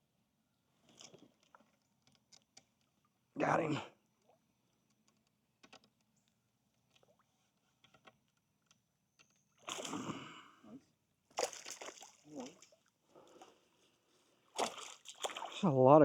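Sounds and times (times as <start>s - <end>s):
fish splashing water: 9.6s - 10.3s, 11.3s - 13.6s, 14.4s - 15.7s.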